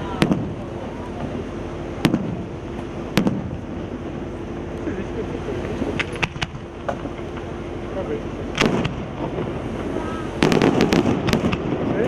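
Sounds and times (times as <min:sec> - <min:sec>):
fireworks bangs: 0:00.0 - 0:04.3, 0:08.5 - 0:12.0
low rumble: 0:00.0 - 0:12.0
steady hum: 0:00.0 - 0:12.0.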